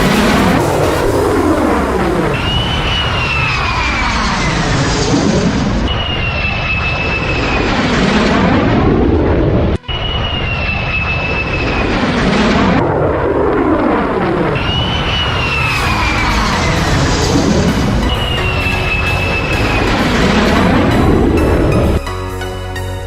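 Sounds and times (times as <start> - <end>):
aircraft engine passing overhead: 7.0 - 22.0.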